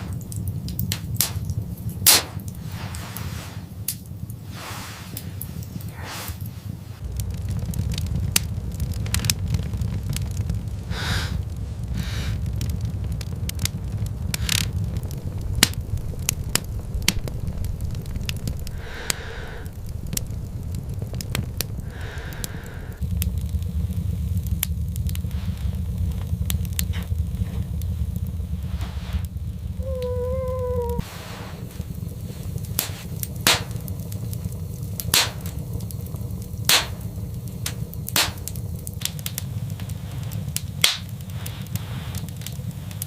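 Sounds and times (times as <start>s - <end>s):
crackling and snapping: 0.0s - 43.0s
low wind rumble: 0.0s - 43.0s
short higher sounds: 29.8s - 31.1s.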